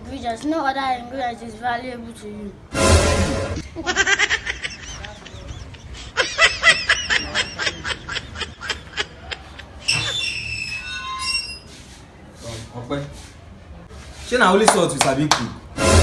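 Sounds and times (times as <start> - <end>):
high-pitched laughter: 3.6 - 10.2.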